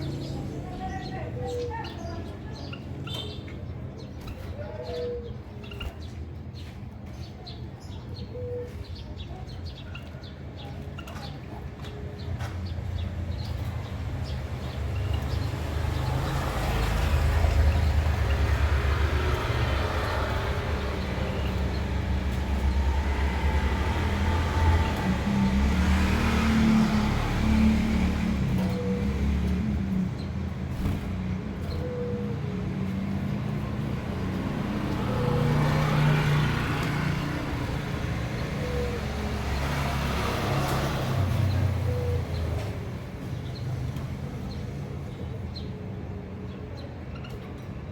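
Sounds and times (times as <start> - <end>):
passing motor vehicle rumble: 0.0 - 47.9
low engine hum: 13.4 - 43.2.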